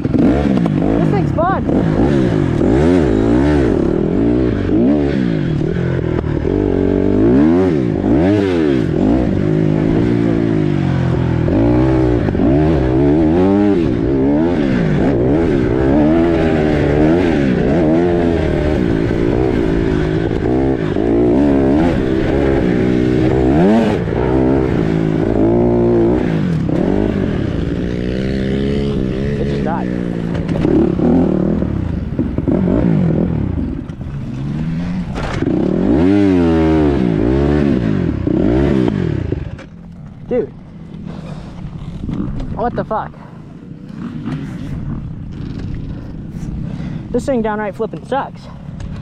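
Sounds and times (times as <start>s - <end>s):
dirt bike engine revving: 0.0s - 49.0s.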